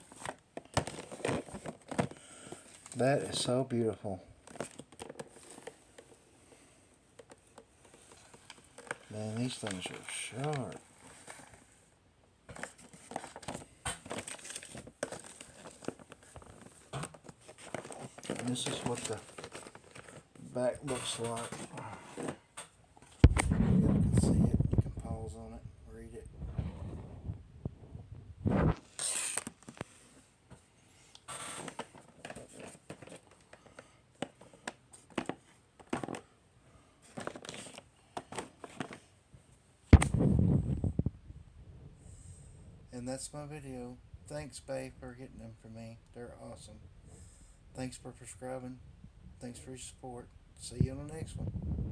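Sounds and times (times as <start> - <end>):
packaging crinkling and rustling: 0.0 - 6.2, 7.1 - 11.7, 12.5 - 25.2, 28.5 - 30.3, 31.1 - 36.4, 37.0 - 39.2
clicks and crackles: 39.9 - 41.2.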